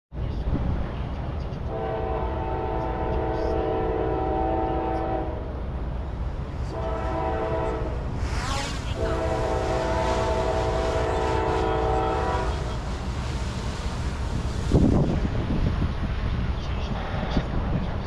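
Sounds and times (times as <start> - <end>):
train rumbling: 0.1 - 18.0
locomotive air horn: 1.7 - 5.4, 6.7 - 12.9.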